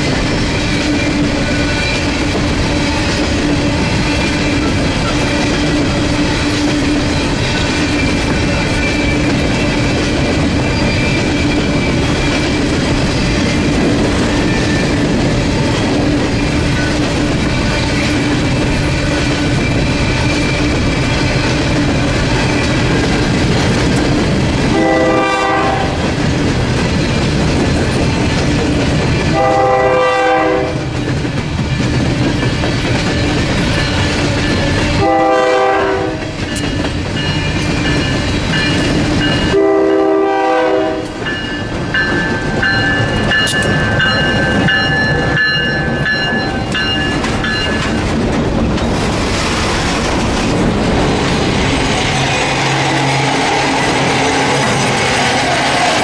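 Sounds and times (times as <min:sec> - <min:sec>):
locomotive working: 0:00.0 - 0:56.0
high-pitched wheel squeal: 0:10.6 - 0:12.7
locomotive horn blasts: 0:24.7 - 0:26.0, 0:29.3 - 0:30.9, 0:35.0 - 0:36.4, 0:39.5 - 0:41.2.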